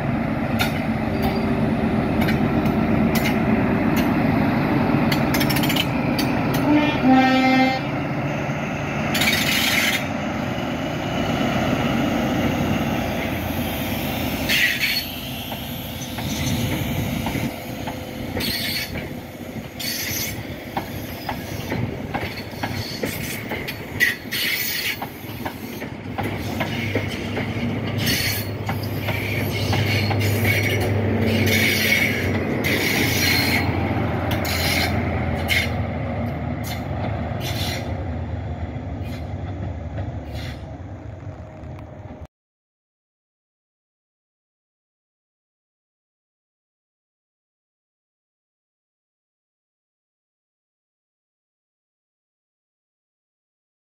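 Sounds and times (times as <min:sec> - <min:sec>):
train wheel clicks: 0:00.6 - 0:01.4, 0:02.1 - 0:04.2, 0:05.0 - 0:06.7, 0:09.1 - 0:10.1, 0:14.5 - 0:37.9
train wheel squeals: 0:00.7 - 0:02.4, 0:05.1 - 0:07.5, 0:09.0 - 0:10.2, 0:13.2 - 0:35.9, 0:36.6 - 0:38.1, 0:38.9 - 0:39.5, 0:40.1 - 0:41.7.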